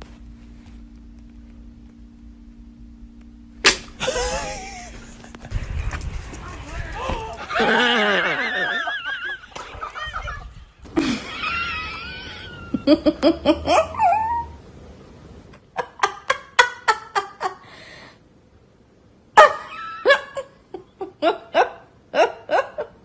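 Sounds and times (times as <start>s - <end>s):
people laughing: 4.0s - 14.1s
wavering high-pitched cry: 13.8s - 14.6s.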